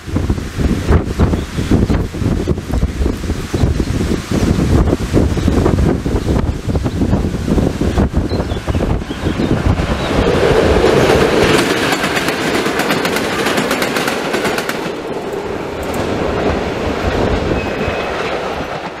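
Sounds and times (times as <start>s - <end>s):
train rumble: 0.0s - 19.0s
wheels clattering over rail joints: 8.8s - 19.0s.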